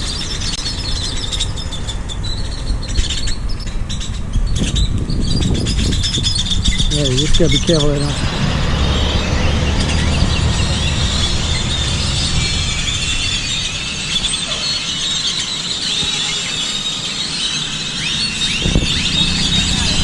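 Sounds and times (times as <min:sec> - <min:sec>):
flock of birds chattering: 0:00.0 - 0:20.0
low rumble: 0:04.7 - 0:14.6, 0:18.0 - 0:20.0.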